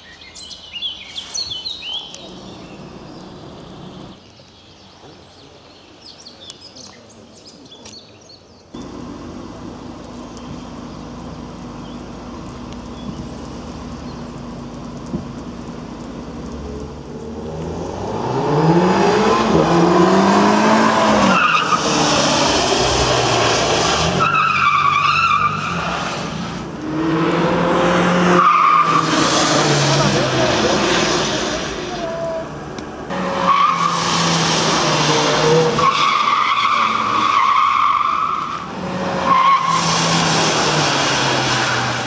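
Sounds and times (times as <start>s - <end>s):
car engine revving: 8.8s - 42.0s
tyres squealing: 24.1s - 26.2s.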